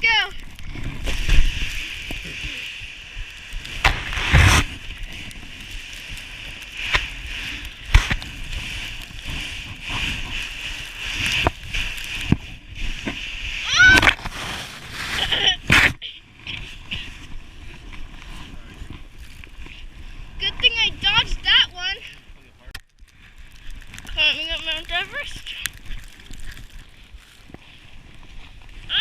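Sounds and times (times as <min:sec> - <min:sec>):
sled scraping on snow: 0:00.0 - 0:22.3, 0:23.7 - 0:29.0
child crying out: 0:13.6 - 0:14.0.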